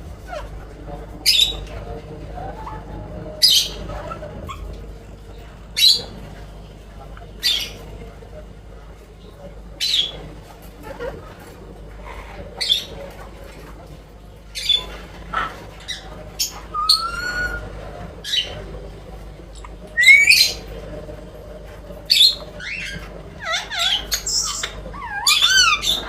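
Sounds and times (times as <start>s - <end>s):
parrot squawking: 0.2s - 1.7s, 2.5s - 4.8s, 5.8s - 6.1s, 10.8s - 13.0s, 14.6s - 18.6s, 19.6s - 20.7s, 22.0s - 26.0s
parrot chirping: 1.2s - 1.7s, 3.4s - 4.8s, 5.7s - 6.1s, 12.0s - 13.0s, 14.6s - 18.6s, 19.6s - 20.7s, 22.0s - 26.0s
parrot whistling: 16.7s - 17.7s, 20.0s - 20.6s, 22.2s - 26.0s.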